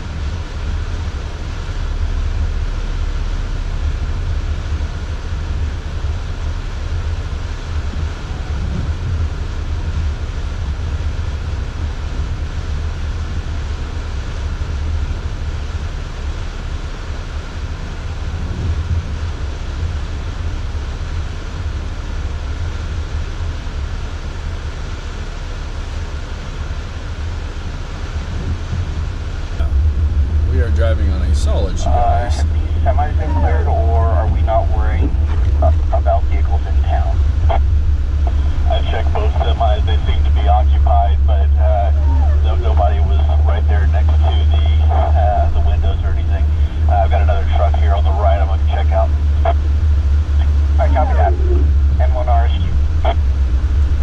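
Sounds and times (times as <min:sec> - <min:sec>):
vehicle engine and road noise: 0:00.0 - 0:54.0.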